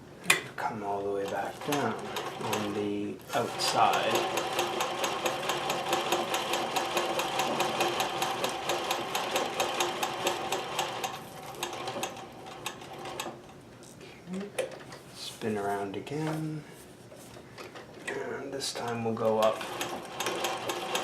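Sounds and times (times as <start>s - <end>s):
sewing machine motor hum: 1.2s - 13.4s, 19.2s - 21.0s
sewing machine stitching: 1.2s - 13.4s, 19.2s - 21.0s.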